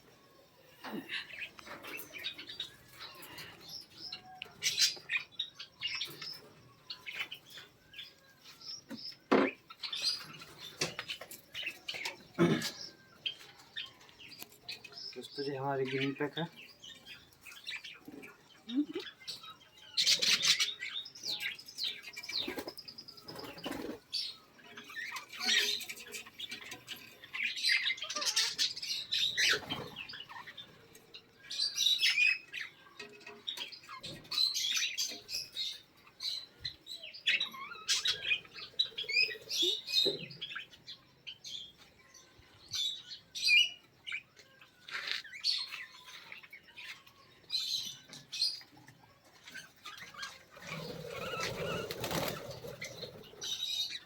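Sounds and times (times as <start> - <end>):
cage birds chirping and squawking: 0.0 - 54.0.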